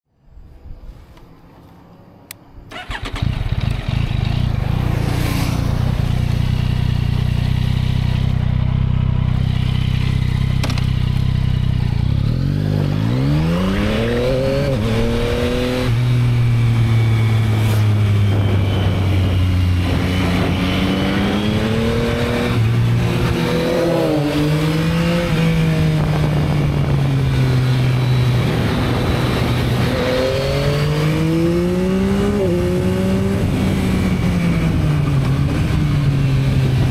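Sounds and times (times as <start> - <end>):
motorcycle engine starting and idling: 2.6 - 12.9
motorcycle engine accelerating: 2.7 - 36.9.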